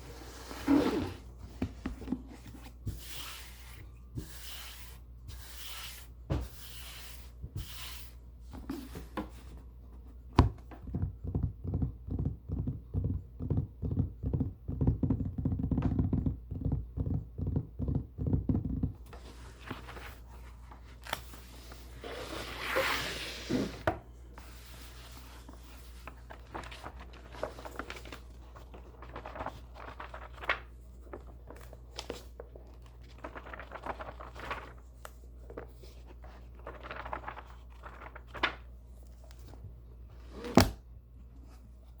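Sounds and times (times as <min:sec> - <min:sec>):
paper rustle: 0:19.1 - 0:23.2, 0:24.3 - 0:39.6.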